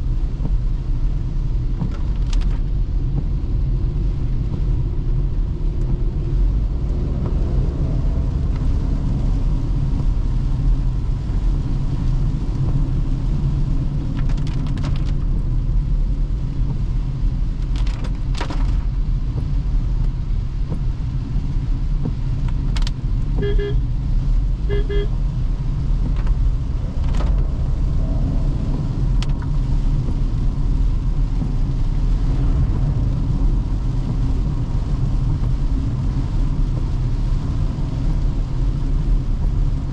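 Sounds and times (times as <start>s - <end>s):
tyre noise on wet road: 0.0s - 39.9s
car horn toots: 23.4s - 23.8s, 24.7s - 25.1s.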